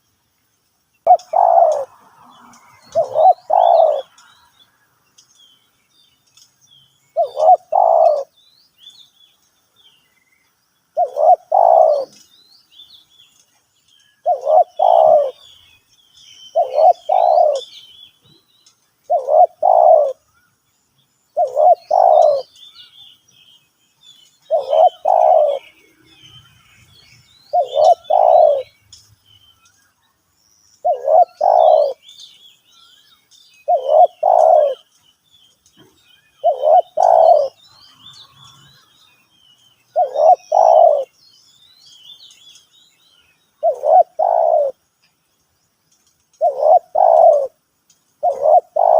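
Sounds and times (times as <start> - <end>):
small birds chirping: 0.0 - 48.9
dove cooing: 1.0 - 2.0, 2.9 - 4.2, 7.2 - 8.3, 11.0 - 12.2, 14.2 - 15.6, 16.5 - 17.7, 19.1 - 20.2, 21.4 - 22.5, 24.5 - 25.9, 27.5 - 28.7, 30.8 - 32.1, 33.7 - 34.8, 35.8 - 37.6, 39.9 - 41.1, 43.6 - 44.8, 46.4 - 47.6, 48.2 - 48.9.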